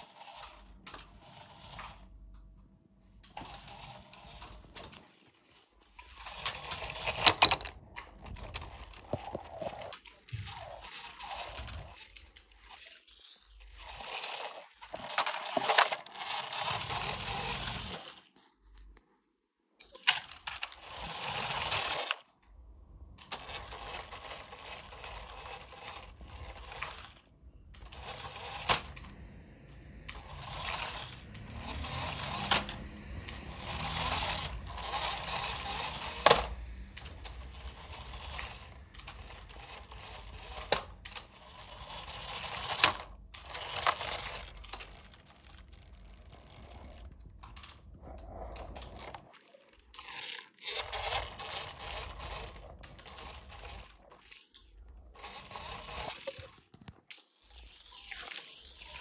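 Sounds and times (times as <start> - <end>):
toy truck wheels rattling: 0.0 - 2.5, 3.2 - 18.4, 19.8 - 22.3, 23.1 - 59.0.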